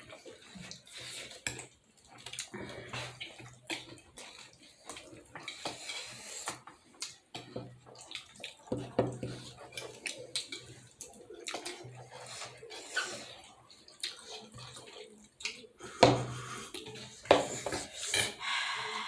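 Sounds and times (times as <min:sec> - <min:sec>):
wet chewing and slurping: 0:00.0 - 0:19.0
cutlery and dishes clinking: 0:16.9 - 0:18.4.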